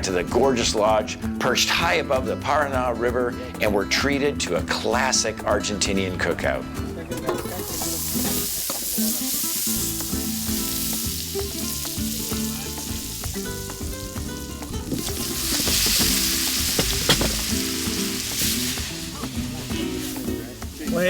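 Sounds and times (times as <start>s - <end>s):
music: 0.0s - 21.0s
meat sizzling on a grill: 7.4s - 21.0s.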